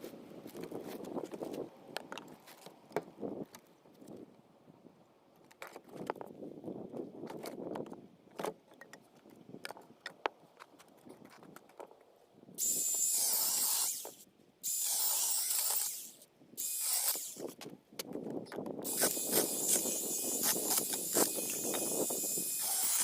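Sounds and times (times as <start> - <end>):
power tool hissing bursts: 12.6 - 17.5, 18.9 - 23.0.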